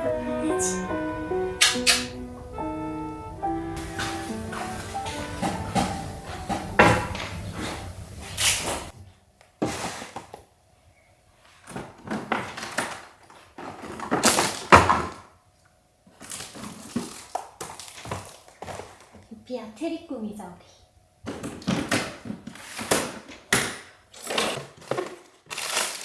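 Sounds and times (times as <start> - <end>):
handling knocks and thumps: 3.8 - 8.9.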